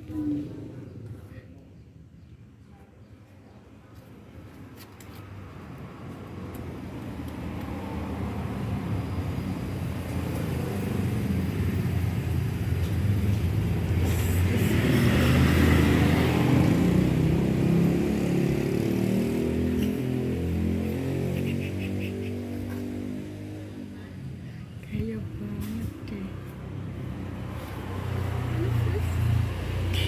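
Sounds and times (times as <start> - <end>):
vehicle engine approaching: 5.4 - 30.0.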